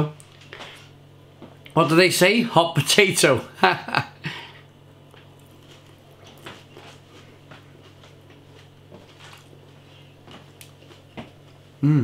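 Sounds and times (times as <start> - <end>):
low steady hum: 0.0 - 12.0
person chewing crisp food: 5.0 - 11.1.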